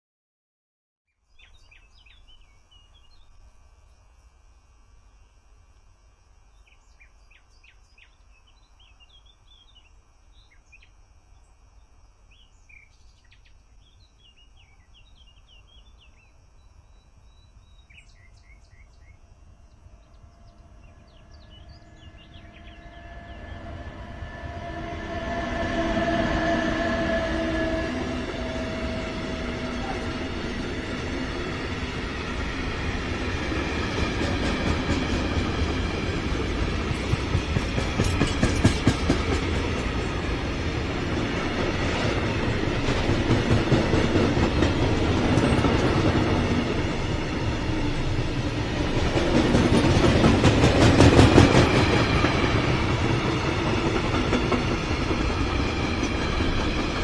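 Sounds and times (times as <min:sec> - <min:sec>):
birds chirping: 0:06.5 - 0:24.0
freight train rolling past: 0:16.8 - 0:57.0.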